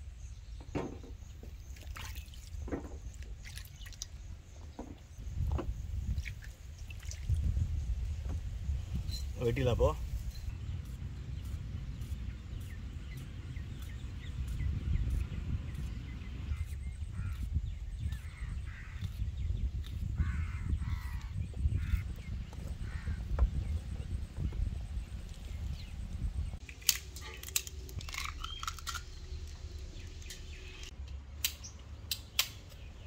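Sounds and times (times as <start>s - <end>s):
birds cawing: 16.5s - 17.5s, 18.1s - 19.2s, 20.2s - 23.4s
low steady rumble: 20.4s - 26.6s.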